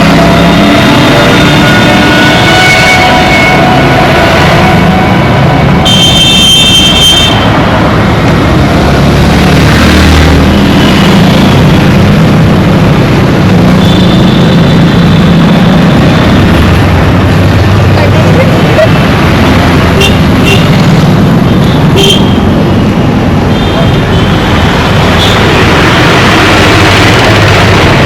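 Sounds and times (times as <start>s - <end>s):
vehicle engines running: 0.0s - 28.0s
vehicle horn: 0.7s - 7.5s, 20.0s - 20.8s, 21.9s - 22.4s.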